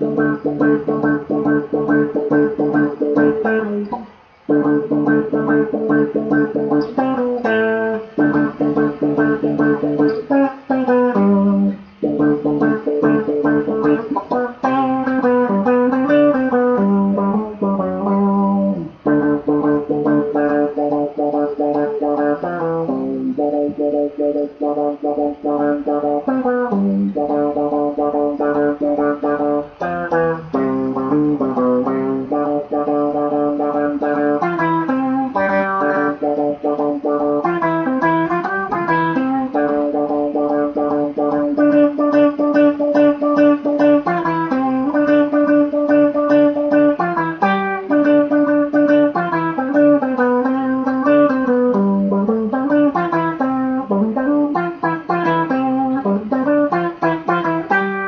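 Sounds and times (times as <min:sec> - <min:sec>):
guitar with octave effect: 0:00.0 - 0:58.0.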